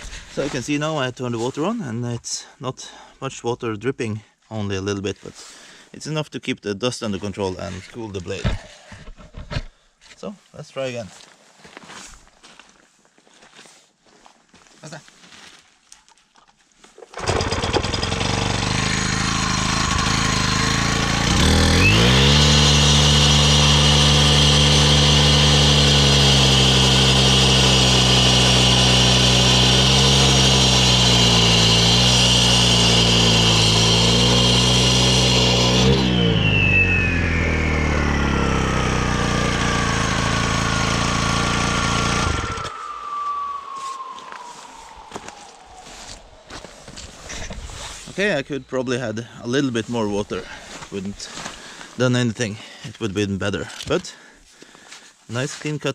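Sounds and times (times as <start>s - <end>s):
concrete saw engine revving: 17.1s - 46.6s
blade cutting rock: 17.2s - 43.5s
blade whine spinning down: 17.3s - 47.1s.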